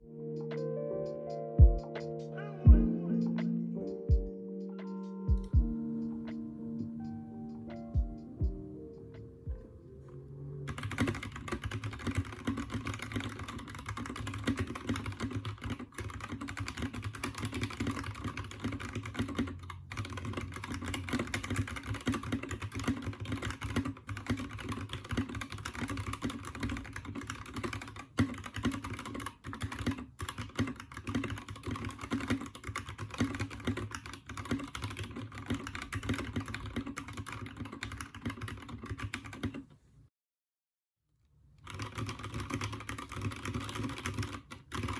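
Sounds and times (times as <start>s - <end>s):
mechanical keyboard typing: 10.7s - 39.7s, 41.6s - 44.9s.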